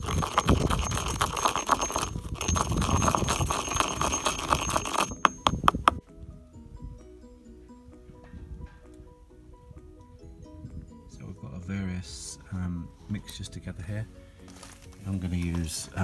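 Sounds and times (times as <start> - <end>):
stone clacking on mortar: 0.0 - 6.0
stone grinding in a mortar: 0.0 - 6.0
light background music: 0.1 - 16.0.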